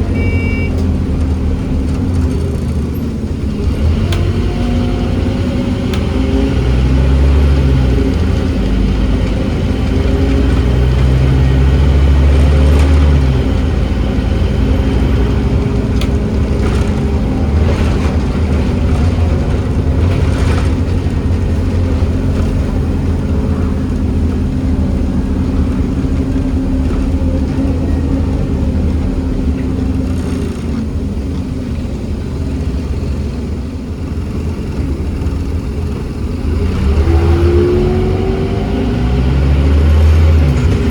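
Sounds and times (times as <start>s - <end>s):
bus diesel engine pulling: 0.0s - 40.9s
clicks inside bus: 3.9s - 4.9s, 14.8s - 31.5s.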